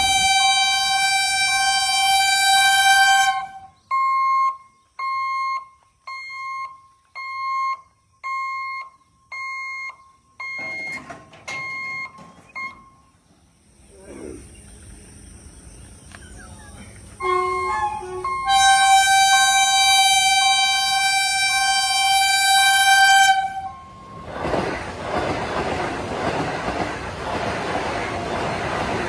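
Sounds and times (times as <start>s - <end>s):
long horn blast: 0.0s - 3.8s, 17.2s - 24.2s
electronic warning beeper: 3.9s - 13.0s, 17.2s - 19.6s.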